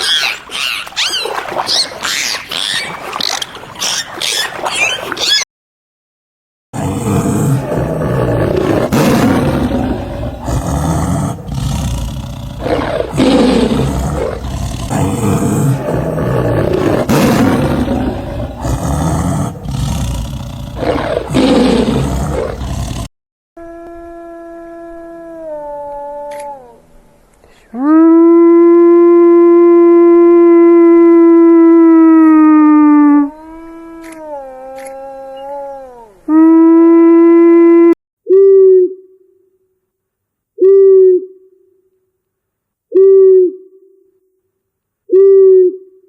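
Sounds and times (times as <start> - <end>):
big cat roaring: 6.8 - 23.1.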